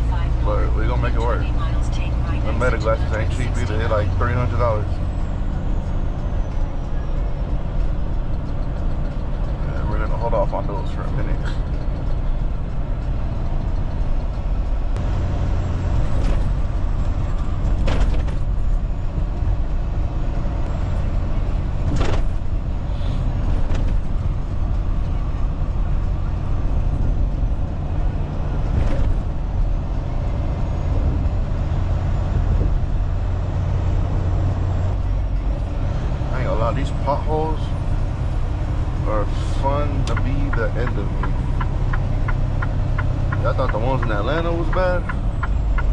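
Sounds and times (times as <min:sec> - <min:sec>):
truck engine and road rumble: 0:00.0 - 0:45.9.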